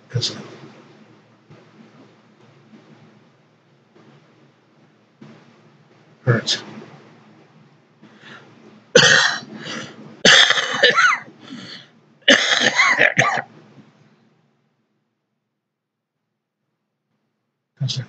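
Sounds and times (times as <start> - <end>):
man coughing: 9.0 - 11.3, 12.3 - 13.5.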